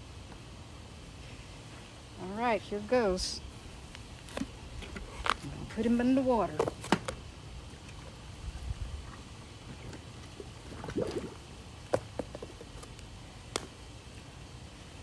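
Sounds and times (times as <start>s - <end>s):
water dripping and gurgling: 7.0s - 12.0s.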